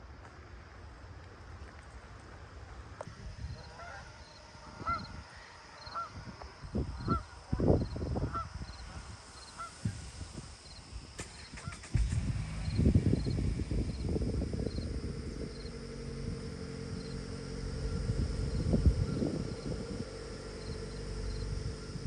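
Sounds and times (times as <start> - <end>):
goose honking: 3.6 - 5.1, 9.6 - 9.8.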